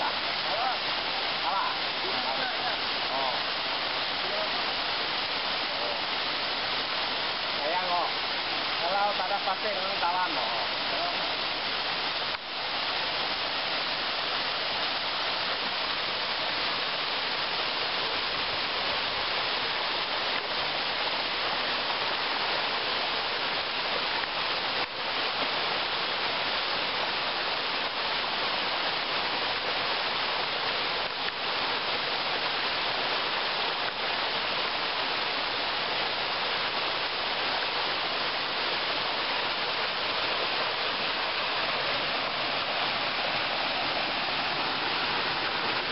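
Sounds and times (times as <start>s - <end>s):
waterfall rushing and splashing: 0.0s - 45.9s.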